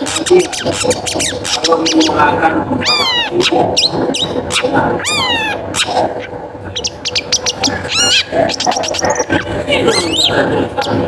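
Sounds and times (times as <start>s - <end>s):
bird scratchy chatter: 0.0s - 11.0s
bird slurred whistled calls: 2.8s - 6.0s, 6.8s - 10.4s.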